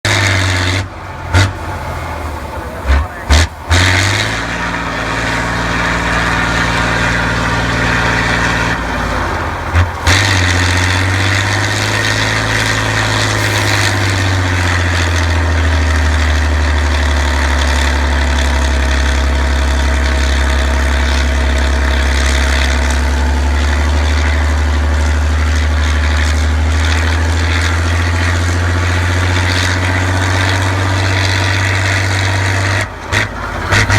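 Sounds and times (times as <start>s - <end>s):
truck engine running under load: 0.0s - 33.9s.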